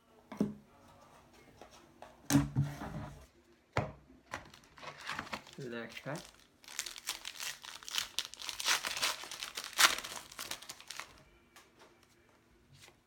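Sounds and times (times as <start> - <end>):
plastic wrapper crinkling and tearing: 4.4 - 11.2.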